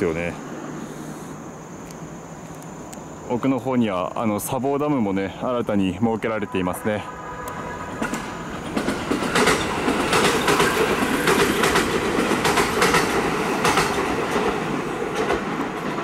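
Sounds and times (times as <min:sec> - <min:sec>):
train wheels clattering over joints: 0:07.9 - 0:16.0.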